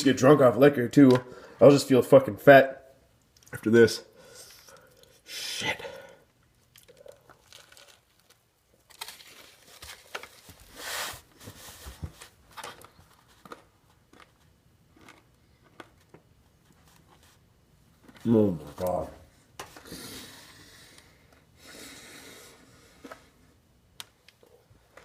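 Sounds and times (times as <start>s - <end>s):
burger wrapper crinkling: 6.6s - 11.0s.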